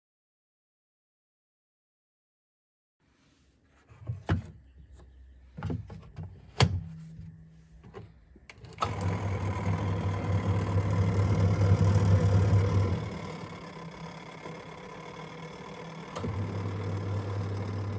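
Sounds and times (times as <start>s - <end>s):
washing machine motor hum: 8.6s - 17.9s.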